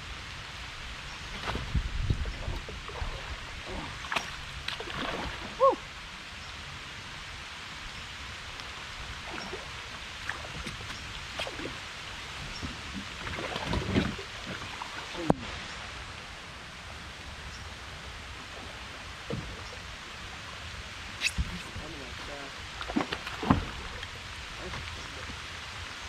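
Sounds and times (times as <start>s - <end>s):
rain hissing on lake: 0.0s - 26.0s
light knocks and splashes: 1.3s - 5.6s, 12.6s - 15.4s, 22.8s - 25.4s.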